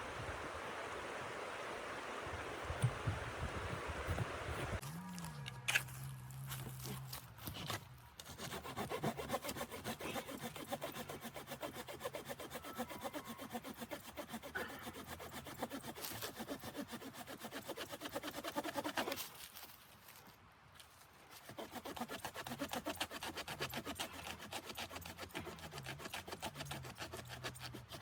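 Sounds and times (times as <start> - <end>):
hand saw cutting wood: 5.7 - 19.5, 21.3 - 28.0.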